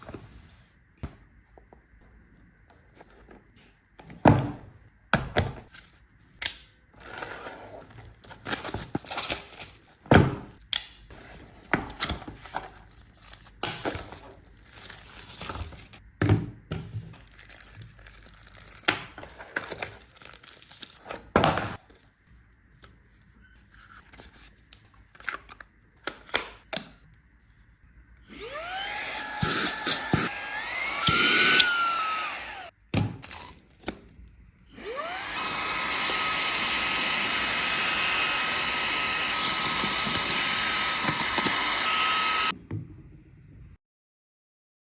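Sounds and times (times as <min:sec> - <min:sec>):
packaging rustling: 0:17.1 - 0:21.3
vacuum cleaner motor whine: 0:28.2 - 0:32.7, 0:34.7 - 0:42.6.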